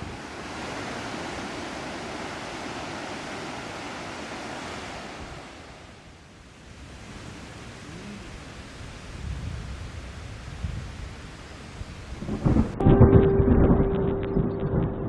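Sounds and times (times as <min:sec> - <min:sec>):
sea surf washing in: 0:00.0 - 0:12.8
wind buffeting microphone: 0:08.9 - 0:15.0.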